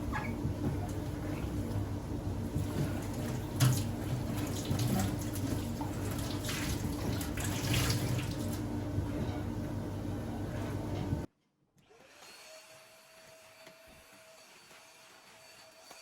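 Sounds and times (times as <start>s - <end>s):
tap water running into sink: 2.5s - 8.7s.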